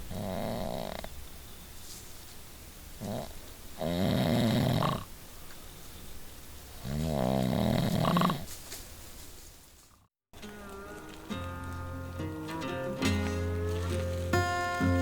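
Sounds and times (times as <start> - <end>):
person snoring: 3.0 - 5.1, 6.8 - 8.4.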